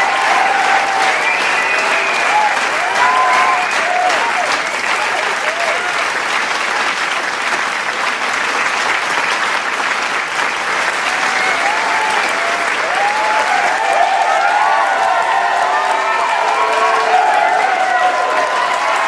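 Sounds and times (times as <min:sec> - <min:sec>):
cheers and shouts: 0:00.0 - 0:06.1, 0:11.0 - 0:19.0
crowd applauding: 0:00.0 - 0:19.0.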